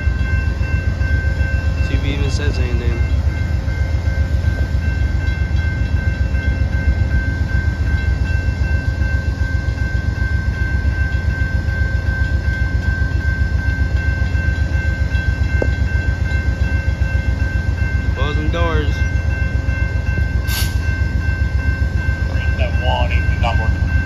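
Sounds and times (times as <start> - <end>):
diesel locomotive engine rumbling: 0.0 - 24.0.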